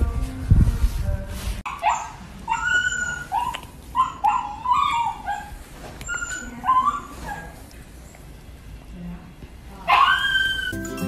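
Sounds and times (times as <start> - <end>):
puppy yipping: 1.7 - 7.6, 9.9 - 10.8.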